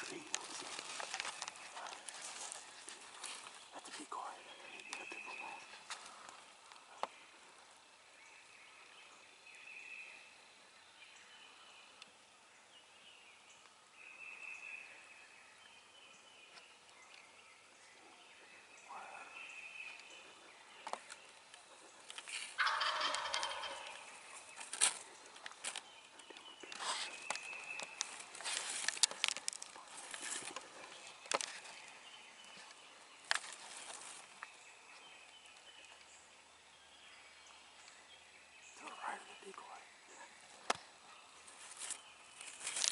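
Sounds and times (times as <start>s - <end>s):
rustling and crackling: 0.0s - 7.2s, 20.8s - 34.6s, 40.4s - 42.9s.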